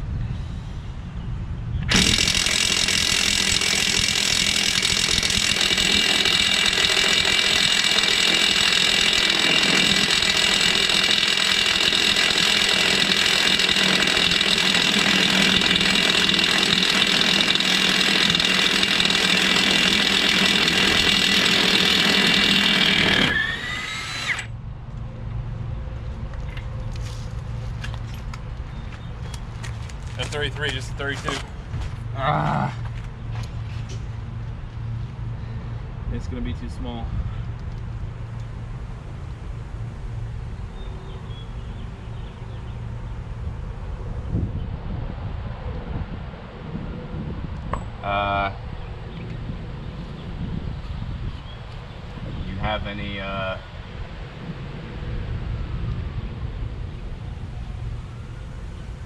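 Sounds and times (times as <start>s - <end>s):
impact wrench running: 1.8s - 24.5s.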